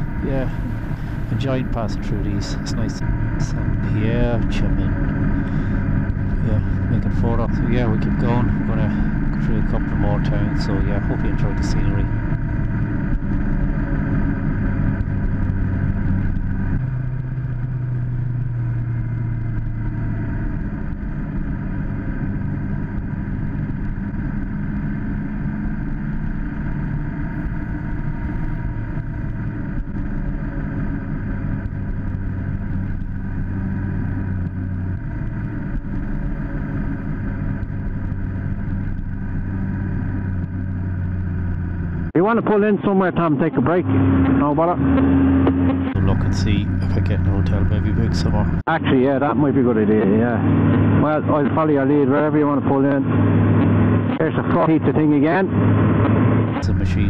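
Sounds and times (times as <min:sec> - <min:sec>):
motorcycle engine running: 0:00.0 - 0:42.2, 0:43.2 - 0:57.0.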